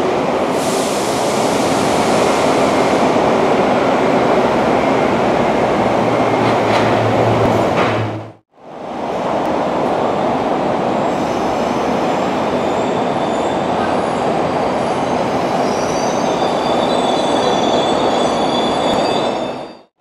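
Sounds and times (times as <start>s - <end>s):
train running noise: 0.2s - 19.8s
high-pitched wheel squeal: 15.6s - 19.9s.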